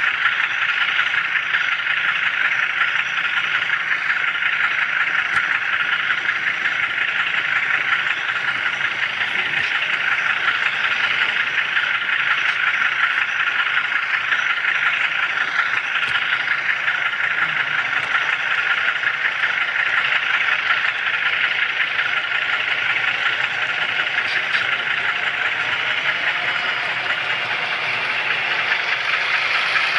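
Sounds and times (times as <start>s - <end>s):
model train wheels rushing: 0.0s - 29.9s.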